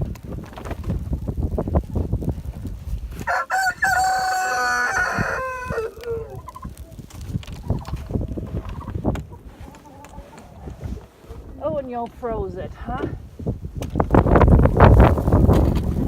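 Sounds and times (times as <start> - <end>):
rustling: 0.0 - 12.6
rooster crowing: 3.2 - 6.4.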